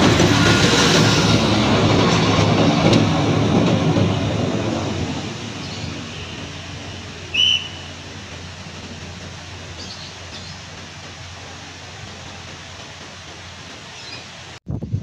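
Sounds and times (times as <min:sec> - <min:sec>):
passenger train rumble: 0:00.0 - 0:15.0
short high whistle: 0:07.3 - 0:07.9.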